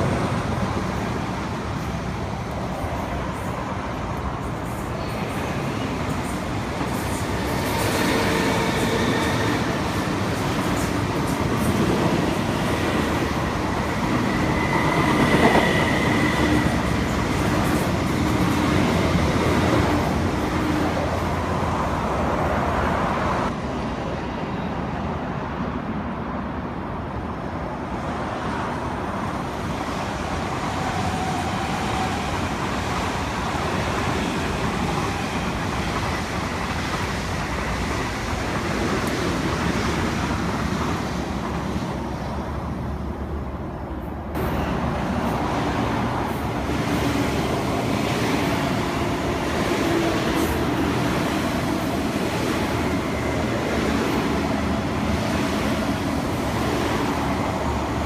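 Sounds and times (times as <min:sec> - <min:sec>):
train wheels rumbling on rails: 0:00.0 - 0:24.9, 0:27.5 - 0:58.0.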